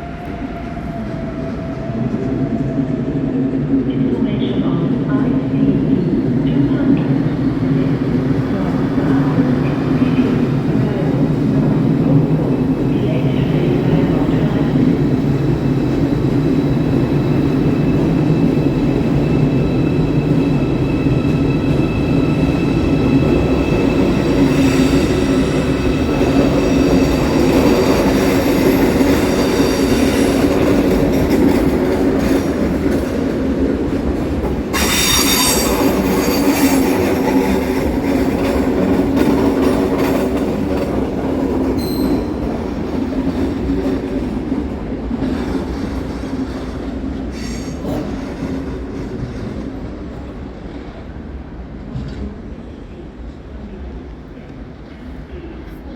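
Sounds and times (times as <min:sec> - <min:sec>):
train rumbling: 0:00.0 - 0:55.9
train wheels squealing: 0:15.2 - 0:30.7, 0:34.7 - 0:37.8, 0:41.8 - 0:42.4, 0:47.3 - 0:49.2.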